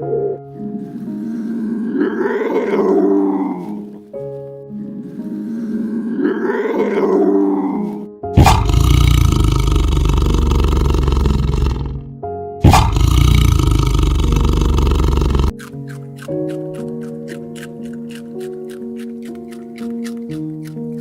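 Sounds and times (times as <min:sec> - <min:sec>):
rising and falling animal call: 0:00.0 - 0:03.9, 0:04.8 - 0:12.0
background music: 0:00.0 - 0:21.0
large animal roaring: 0:01.5 - 0:03.9, 0:05.7 - 0:15.5.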